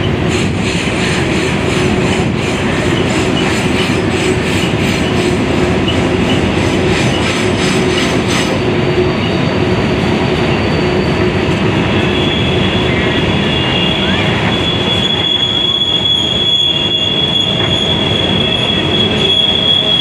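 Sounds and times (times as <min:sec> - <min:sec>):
freight train rumbling past: 0:00.0 - 0:20.0
thin wheel squeal: 0:12.0 - 0:20.0.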